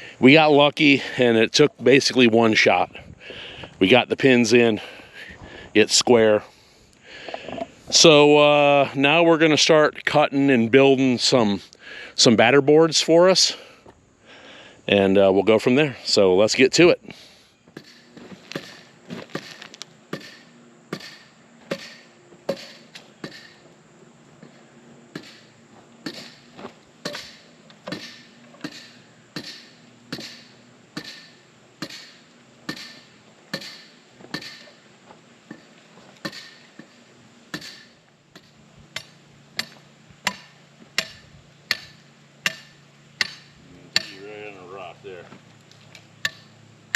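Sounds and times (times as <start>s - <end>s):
faint steady hum: 0.0s - 46.9s
hammer striking wood: 17.8s - 23.6s, 25.2s - 26.4s, 27.0s - 34.8s, 36.2s - 36.9s, 37.5s - 44.2s.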